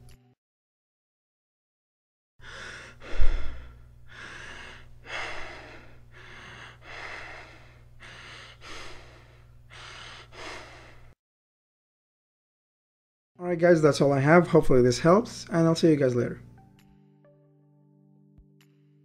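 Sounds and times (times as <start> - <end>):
deep rapid breathing: 2.4 - 11.2
steady low hum: 2.4 - 11.2.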